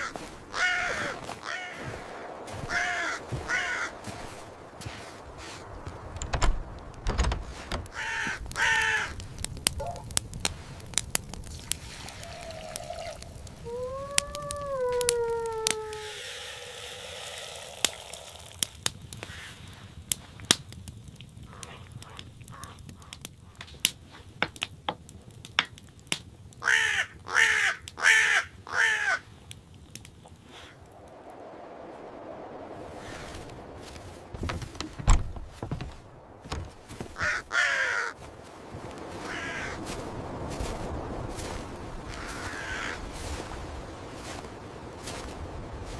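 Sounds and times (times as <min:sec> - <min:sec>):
crow cawing: 0:00.0 - 0:04.5, 0:07.9 - 0:09.2, 0:12.2 - 0:16.5, 0:21.5 - 0:23.3, 0:26.6 - 0:29.3, 0:37.2 - 0:38.2, 0:39.2 - 0:40.0, 0:42.1 - 0:43.3.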